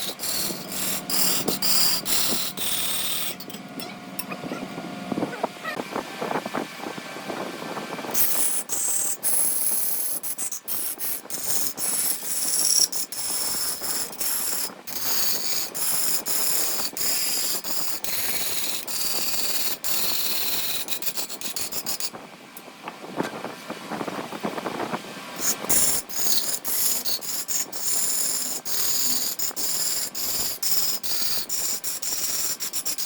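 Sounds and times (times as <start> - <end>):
wood lathe tool scraping: 0.0 - 4.3, 8.1 - 22.1, 25.4 - 33.0.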